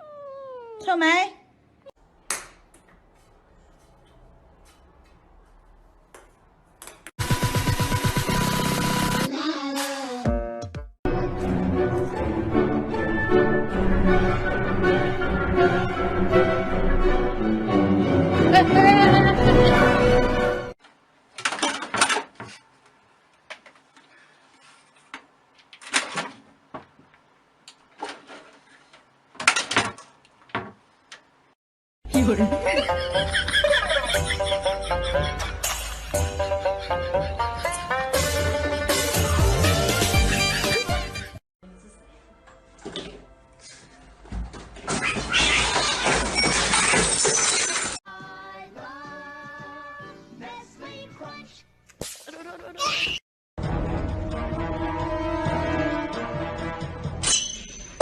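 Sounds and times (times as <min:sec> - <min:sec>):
background music with held notes: 0:32.1 - 0:43.6
loud shattering crash: 0:45.4 - 0:48.0.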